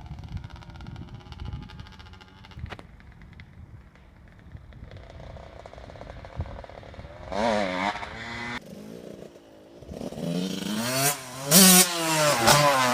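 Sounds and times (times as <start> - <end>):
dirt bike engine revving: 4.8 - 12.9.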